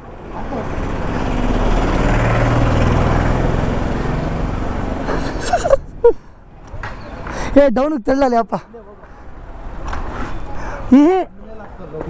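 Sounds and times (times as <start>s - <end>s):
vehicle engine passing by: 0.0s - 7.3s.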